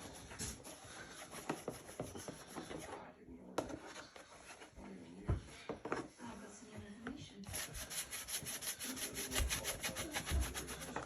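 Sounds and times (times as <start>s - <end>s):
fast scrubbing strokes on plastic: 7.5s - 11.0s.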